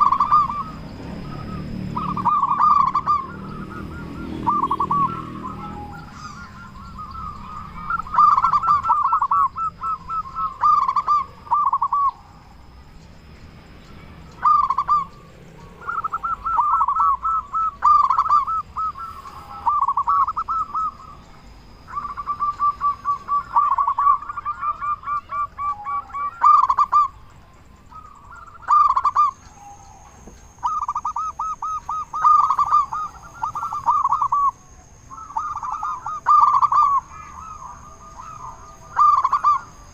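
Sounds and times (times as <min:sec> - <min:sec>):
dove cooing: 0:00.0 - 0:12.8, 0:14.2 - 0:39.9.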